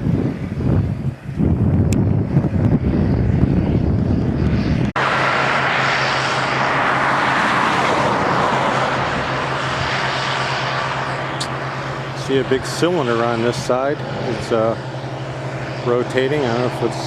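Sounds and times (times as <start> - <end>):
combine harvester drone: 0.0 - 17.0
constant low hum: 0.0 - 17.0
wind buffeting microphone: 0.0 - 17.0.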